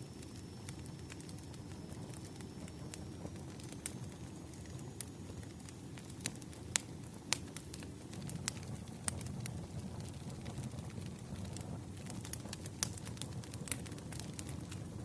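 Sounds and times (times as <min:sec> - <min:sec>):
fire popping: 0:00.0 - 0:15.0
firewood crackling: 0:00.0 - 0:15.0.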